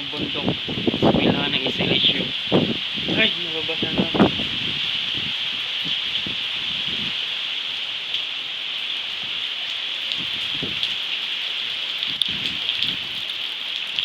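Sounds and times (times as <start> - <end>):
heavy rain pouring: 0.0 - 14.0
raindrops tapping: 9.2 - 14.0.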